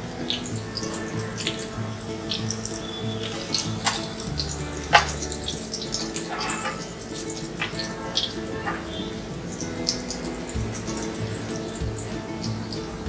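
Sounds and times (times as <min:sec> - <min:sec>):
fish sizzling in oil: 0:00.1 - 0:13.0
metal spatula scraping pan: 0:03.2 - 0:09.2.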